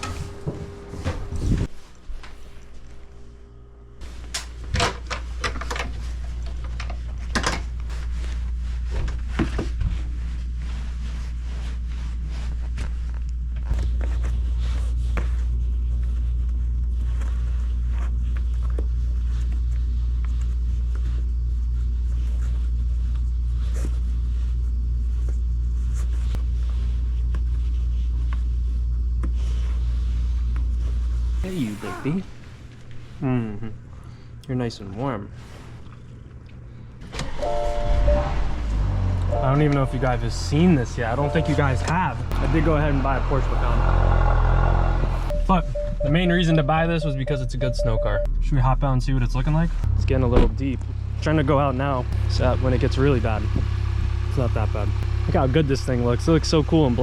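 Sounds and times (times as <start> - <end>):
car engine idling: 37.2 - 47.1, 49.5 - 57.0.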